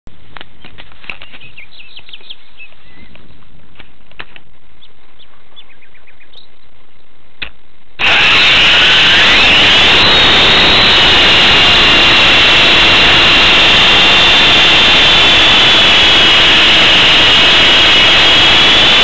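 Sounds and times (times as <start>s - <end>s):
small birds chirping: 0.4s - 4.0s, 4.7s - 7.2s
rc helicopter rotors whining: 8.0s - 19.0s.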